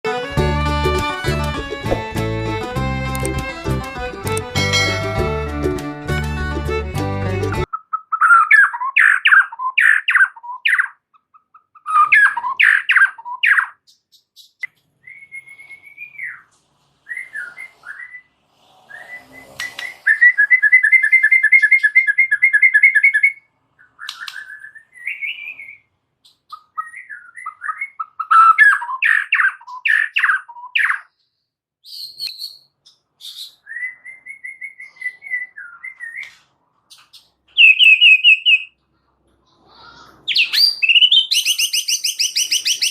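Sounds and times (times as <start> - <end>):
bird singing: 37.0 - 38.8, 40.3 - 42.9.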